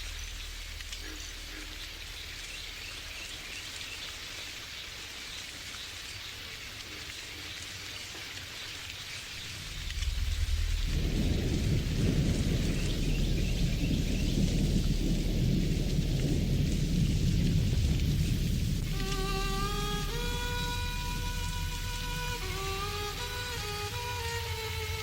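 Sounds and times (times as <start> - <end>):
steady rain falling: 0.0 - 25.0
thunder rumbling: 9.4 - 25.0.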